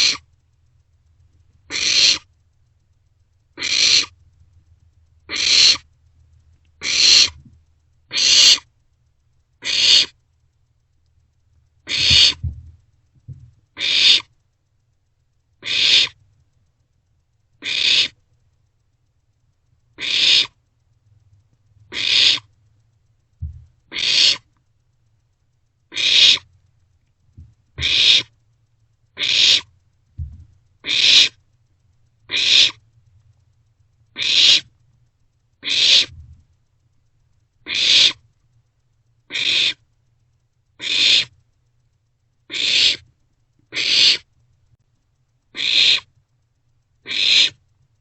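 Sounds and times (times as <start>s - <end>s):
owlets rasping begging calls: 1.7s - 2.3s, 3.6s - 4.1s, 5.3s - 5.8s, 6.8s - 7.4s, 8.1s - 8.6s, 9.6s - 10.1s, 11.9s - 12.4s, 13.8s - 14.3s, 15.6s - 16.2s, 17.6s - 18.2s, 20.0s - 20.5s, 22.0s - 22.5s, 23.9s - 24.4s, 25.9s - 26.5s, 27.8s - 28.3s, 29.2s - 29.7s, 30.8s - 31.4s, 32.3s - 32.8s, 34.2s - 34.6s, 35.6s - 36.1s, 37.7s - 38.2s, 39.3s - 39.8s, 40.8s - 41.3s, 42.5s - 43.0s, 43.7s - 44.2s, 45.6s - 46.1s, 47.1s - 47.6s.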